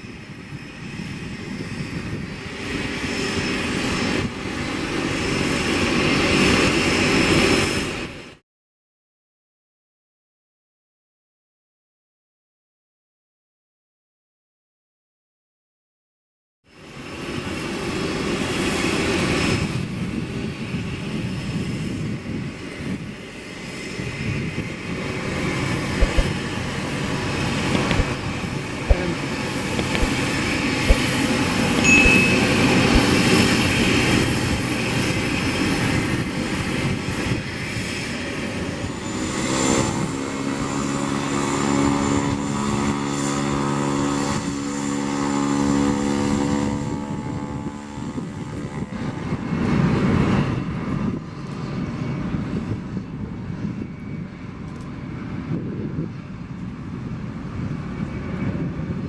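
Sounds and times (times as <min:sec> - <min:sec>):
airliner engines roaring: 0:00.0 - 0:08.4, 0:16.7 - 0:59.0
steady humming tones: 0:24.8 - 0:35.6.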